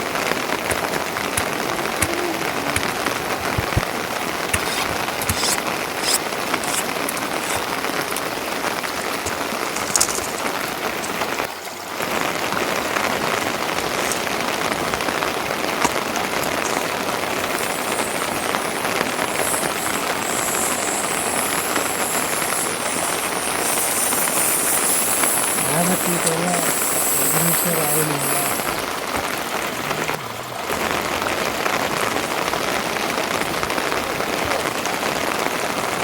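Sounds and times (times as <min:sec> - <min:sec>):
steady rain falling: 0:00.0 - 0:36.0
higher sharper hiss: 0:04.5 - 0:07.8, 0:16.7 - 0:29.0.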